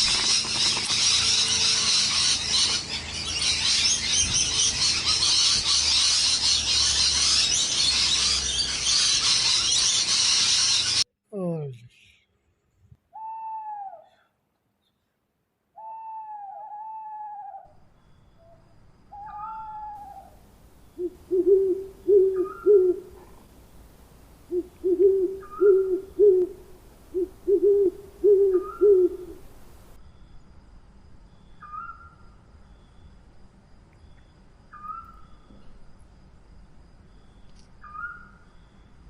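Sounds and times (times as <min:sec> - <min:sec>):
owl hooting: 0:13.1 - 0:14.4, 0:15.8 - 0:17.8, 0:18.4 - 0:23.5, 0:24.4 - 0:29.6
owls calling: 0:13.2 - 0:14.3, 0:15.8 - 0:17.8, 0:18.4 - 0:23.4, 0:24.5 - 0:29.6, 0:37.8 - 0:38.3.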